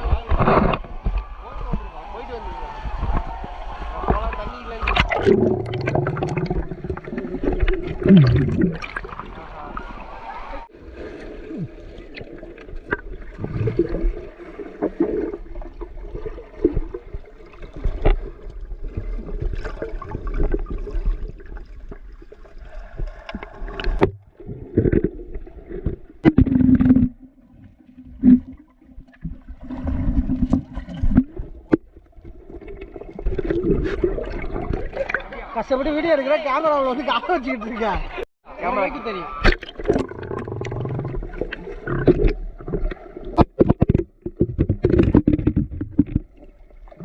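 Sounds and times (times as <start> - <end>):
muffled water sloshing and gurgling: 2.7 - 35.4, 39.4 - 47.0
knocks and splashes on camera: 41.5 - 46.5.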